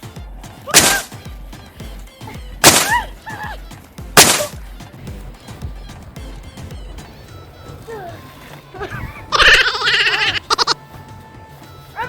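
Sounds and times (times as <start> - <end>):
background music with beat: 0.0 - 12.0
children shrieking: 2.2 - 4.6, 6.8 - 10.8.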